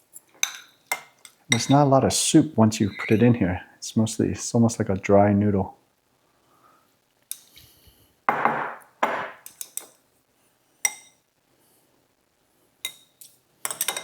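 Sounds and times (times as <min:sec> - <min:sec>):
utensils clinking on ceramic bowl: 0:00.2 - 0:01.8, 0:02.8 - 0:03.4, 0:12.9 - 0:14.0
utensil scraping a bowl: 0:02.8 - 0:03.4.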